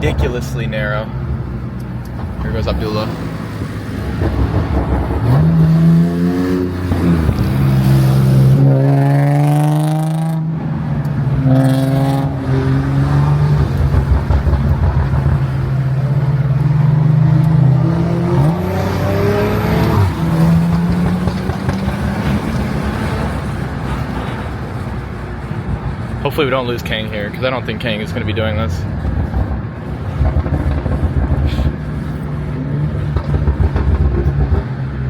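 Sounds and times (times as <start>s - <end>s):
car engine accelerating hard: 11.4s - 23.6s.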